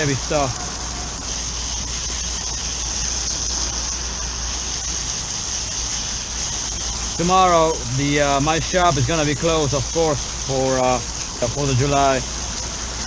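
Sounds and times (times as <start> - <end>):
hose water spraying: 0.0 - 13.0
low steady hum: 0.0 - 13.0.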